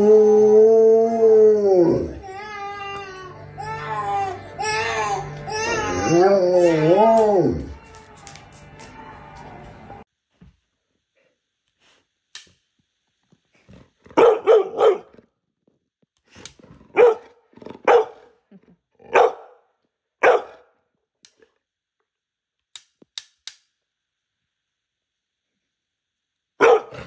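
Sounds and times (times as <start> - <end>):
dog barking: 14.2 - 15.2, 16.9 - 18.3, 19.1 - 19.6, 20.2 - 20.7, 26.6 - 27.0.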